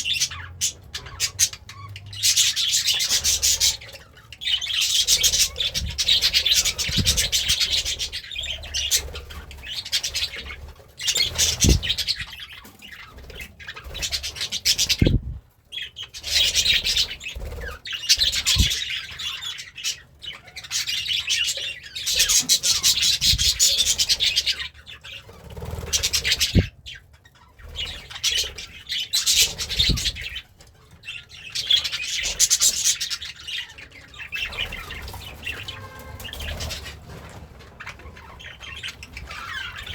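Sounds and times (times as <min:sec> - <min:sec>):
budgerigar warbling and chattering: 0:00.0 - 0:27.0.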